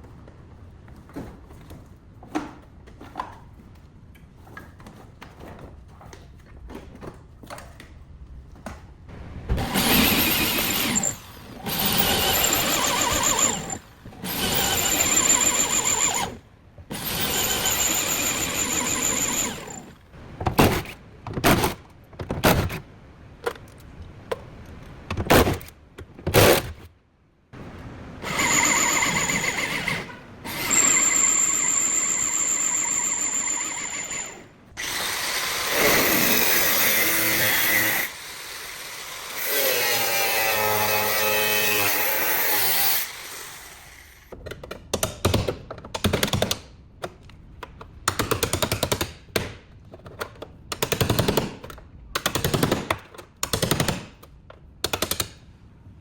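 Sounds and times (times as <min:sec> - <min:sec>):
power tool whining: 0:09.6 - 0:20.0, 0:28.2 - 0:44.3.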